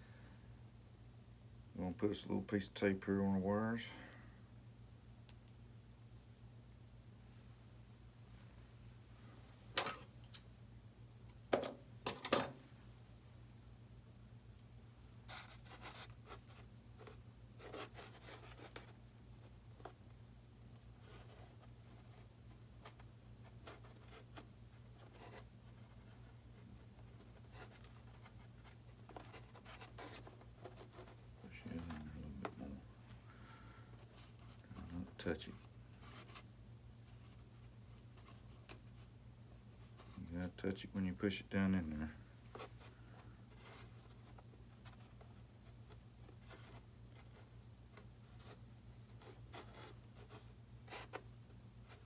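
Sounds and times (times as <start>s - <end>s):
hands rustling tape: 20.8s - 40.3s, 42.4s - 52.0s.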